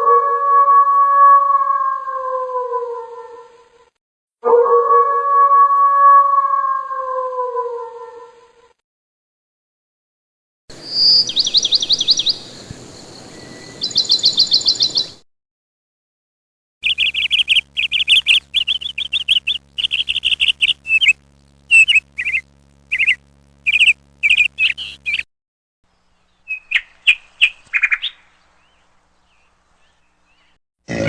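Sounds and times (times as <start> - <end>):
bird chirping: 10.8 - 15.2, 16.8 - 25.3, 25.9 - 30.6.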